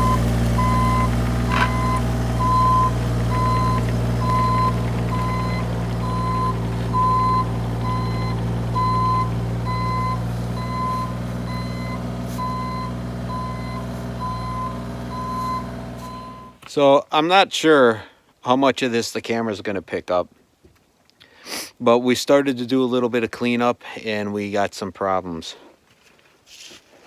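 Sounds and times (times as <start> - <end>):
excavator diesel engine running: 0.0 - 16.6
high alarm beeps: 1.7 - 16.6.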